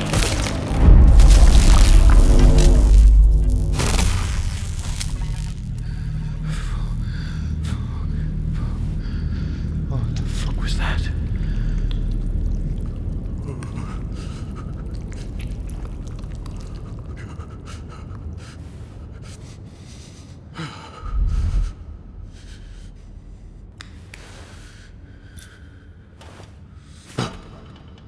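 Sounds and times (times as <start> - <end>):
deep loud thud: 0.0 - 7.2, 21.0 - 22.2
low rumble: 0.0 - 17.6, 20.9 - 25.4.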